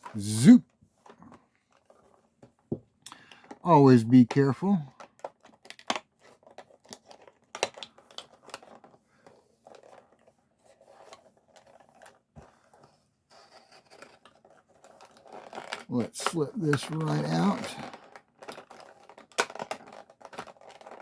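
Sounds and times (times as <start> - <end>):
plastic crackling: 4.3 - 10.3, 13.8 - 21.0.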